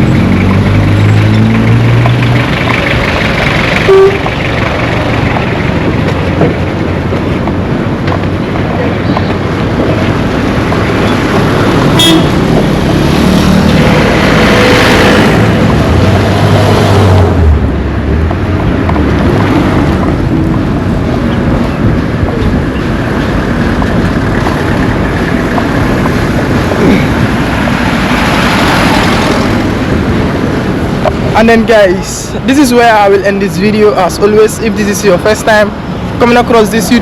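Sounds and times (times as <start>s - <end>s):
vehicle road noise: 0.0s - 37.0s
vehicle horn: 3.8s - 4.3s, 11.9s - 12.5s.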